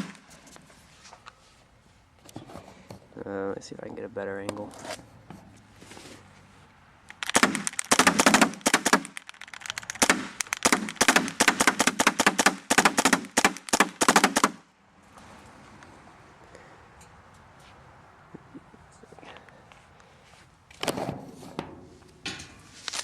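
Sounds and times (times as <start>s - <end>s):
paintball marker firing rapidly: 7.2s - 14.6s.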